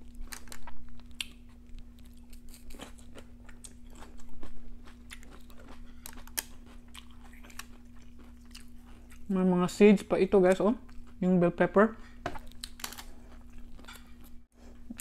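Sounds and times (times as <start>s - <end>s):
person crunching raw pepper: 0.0s - 9.3s, 12.4s - 15.0s.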